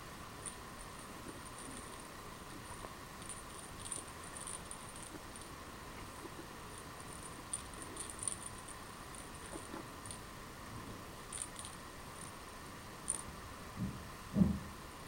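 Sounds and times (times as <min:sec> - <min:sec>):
steady low hum: 0:00.0 - 0:15.0
toy ticks and tinkles: 0:00.4 - 0:05.6, 0:06.2 - 0:10.3, 0:11.3 - 0:12.4, 0:13.1 - 0:13.3.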